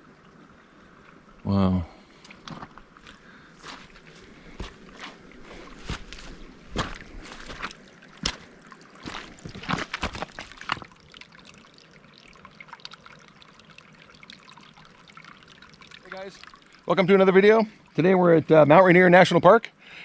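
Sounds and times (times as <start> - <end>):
water trickling: 0.0 - 20.0
footsteps crunching: 2.5 - 10.9.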